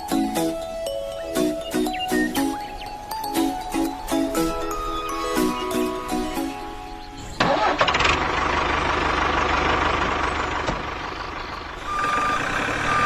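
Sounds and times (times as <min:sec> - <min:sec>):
music: 0:00.0 - 0:07.4
vehicle engine starting and running: 0:07.1 - 0:13.0
reversing beeper: 0:11.8 - 0:13.0.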